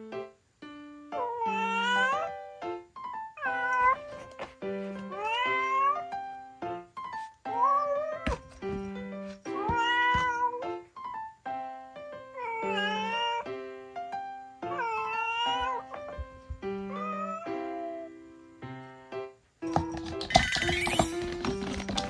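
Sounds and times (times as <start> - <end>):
background music with held notes: 0.0 - 22.0
cat meowing: 1.2 - 2.4, 3.4 - 4.2, 5.0 - 6.1, 7.4 - 8.4, 9.5 - 10.7, 12.3 - 13.5, 14.6 - 18.1.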